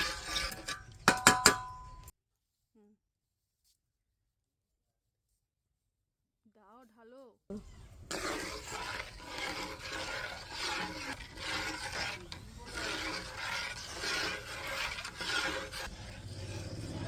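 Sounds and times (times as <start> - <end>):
spatula scraping a pan: 0.0 - 2.1, 7.5 - 17.0.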